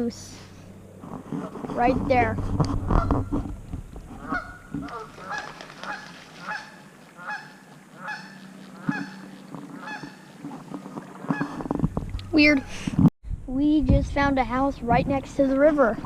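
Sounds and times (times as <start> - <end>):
goose honking: 4.2 - 10.6.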